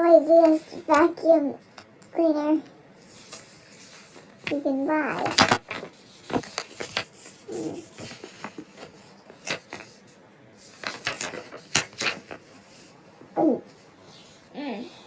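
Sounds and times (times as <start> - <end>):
hard objects clicking and knocking: 4.4 - 7.2.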